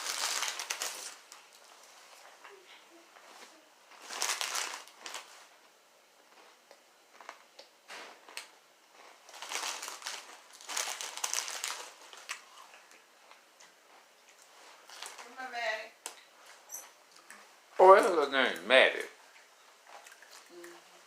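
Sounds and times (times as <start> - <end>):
potato chips crunching: 0.0 - 1.3, 4.0 - 5.3, 9.3 - 13.0.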